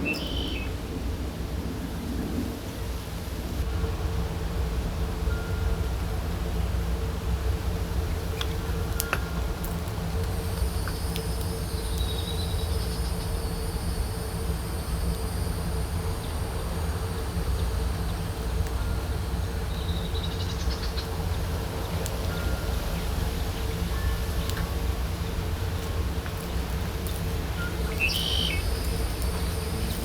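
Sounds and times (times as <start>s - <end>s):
high insect-like drone: 3.6s - 30.0s.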